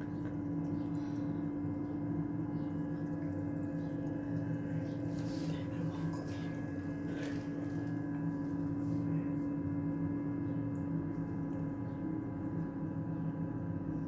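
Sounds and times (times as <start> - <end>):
vending machine humming: 0.0 - 13.9.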